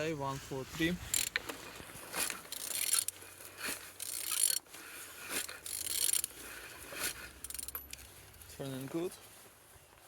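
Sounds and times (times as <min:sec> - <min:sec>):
engine ratcheting and scraping: 0:01.0 - 0:08.1.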